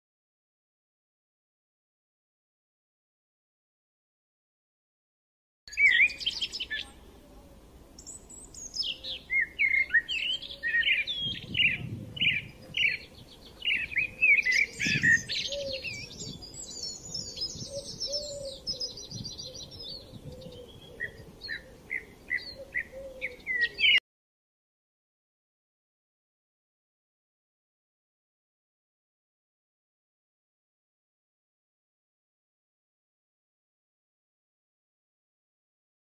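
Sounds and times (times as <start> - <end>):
birds chirping and singing: 5.7 - 7.0, 8.0 - 24.0.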